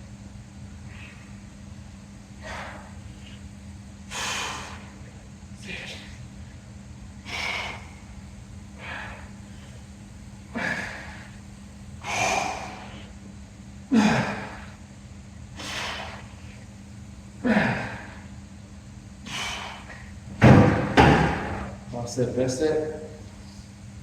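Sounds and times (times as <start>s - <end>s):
steady low hum: 0.0s - 24.0s
man breathing hard: 0.8s - 1.4s, 2.4s - 3.5s, 4.1s - 6.2s, 7.2s - 9.9s, 10.5s - 11.4s, 12.0s - 13.2s, 13.9s - 14.8s, 15.5s - 16.7s, 17.4s - 18.4s, 19.2s - 20.2s.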